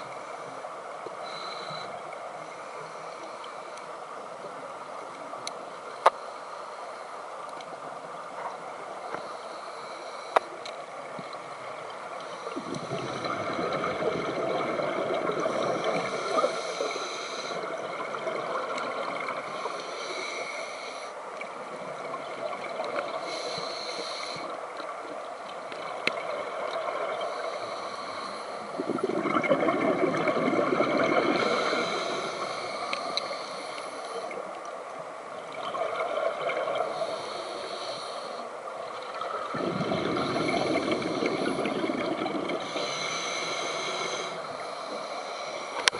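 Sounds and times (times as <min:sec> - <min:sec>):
bubbles gurgling underwater: 0:12.6 - 0:16.2, 0:28.8 - 0:31.9, 0:39.2 - 0:42.7.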